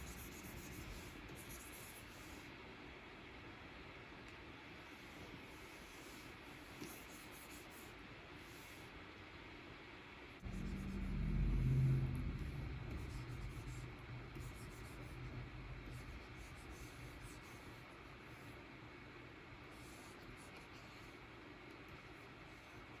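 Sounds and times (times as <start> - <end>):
stylus scratching on screen: 0.0 - 2.4, 10.4 - 18.6
low hum: 10.4 - 18.7.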